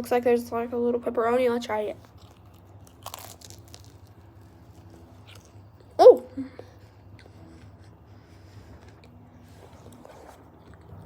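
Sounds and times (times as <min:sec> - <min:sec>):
biting into crunchy food: 0:02.0 - 0:06.0, 0:07.1 - 0:11.0
chewing with mouth full: 0:02.0 - 0:06.0, 0:06.6 - 0:11.0
person exclaiming oh: 0:06.0 - 0:06.6.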